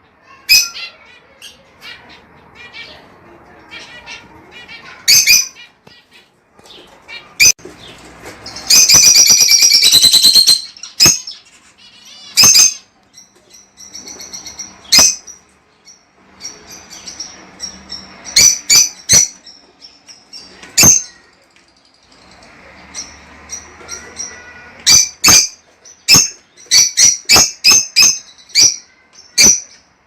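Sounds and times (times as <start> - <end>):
lovebirds shrieking: 22.3 - 29.9.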